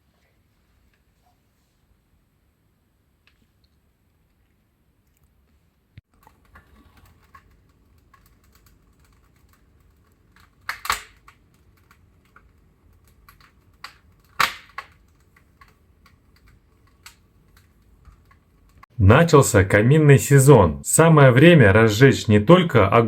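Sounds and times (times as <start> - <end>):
wood fire crackling: 6.0 - 19.2.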